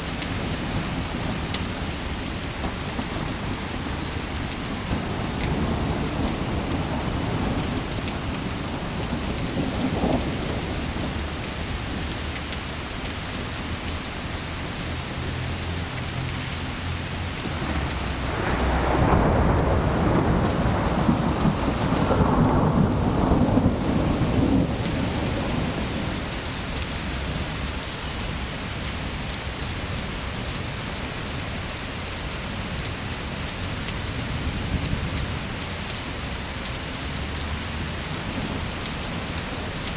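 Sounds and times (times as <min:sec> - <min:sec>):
steady rain: 0:00.0 - 0:39.9
thunder rumbling: 0:00.2 - 0:11.8, 0:17.3 - 0:28.4.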